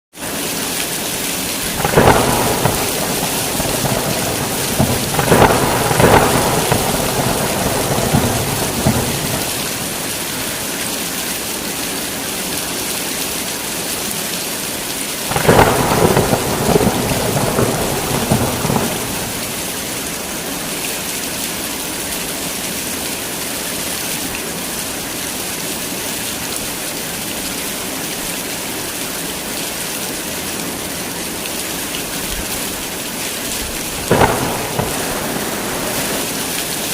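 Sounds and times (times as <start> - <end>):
heavy rain: 0.1 - 36.9
thunder rumbling: 1.6 - 10.7, 15.3 - 20.3, 33.8 - 36.9.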